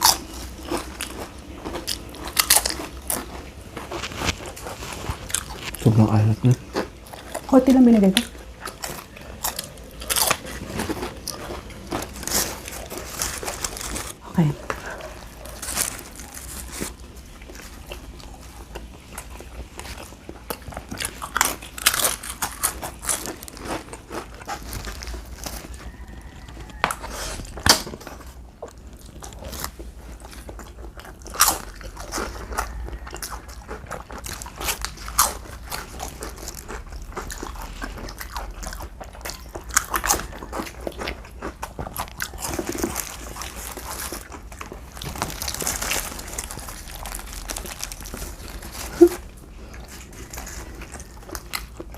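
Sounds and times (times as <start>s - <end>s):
crunchy bites and chewing: 0.0s - 51.9s.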